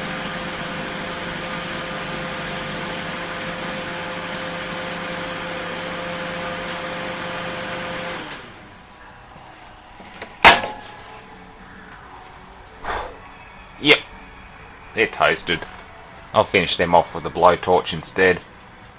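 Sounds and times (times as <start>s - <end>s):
microwave oven humming: 0.0s - 12.5s.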